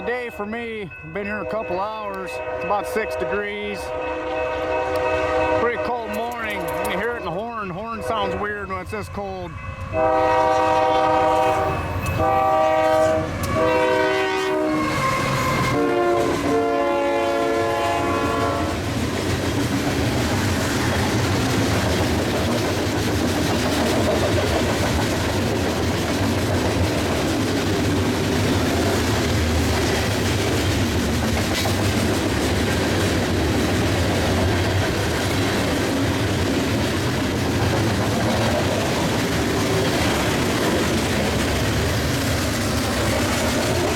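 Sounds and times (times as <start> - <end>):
train wheel and rail noise: 0.0 - 43.9
locomotive air horn blasts: 2.4 - 6.0, 9.8 - 18.8.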